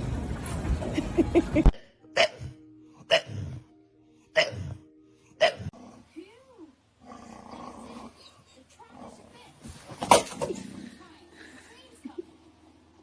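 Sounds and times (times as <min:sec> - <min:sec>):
faint steady musical tone: 0:01.6 - 0:07.0.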